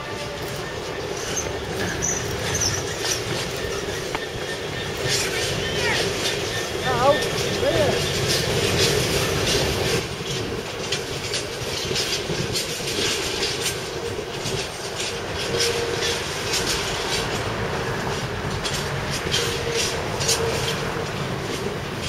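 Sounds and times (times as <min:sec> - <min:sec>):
train rumble: 0:00.0 - 0:22.0
train wheels clicking over rail joints: 0:00.0 - 0:22.0
faint wheel squeal: 0:00.1 - 0:08.9.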